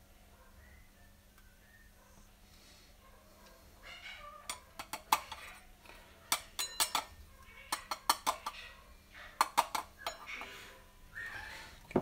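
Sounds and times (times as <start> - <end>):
metallic taps and clinks: 6.3 - 7.1.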